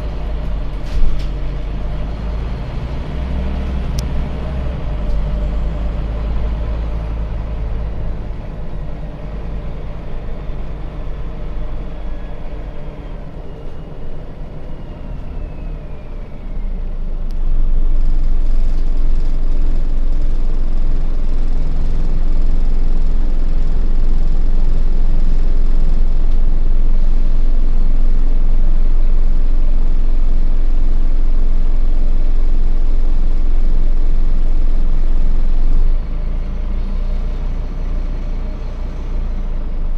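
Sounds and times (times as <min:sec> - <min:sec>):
bus diesel engine accelerating: 0:00.0 - 0:39.9.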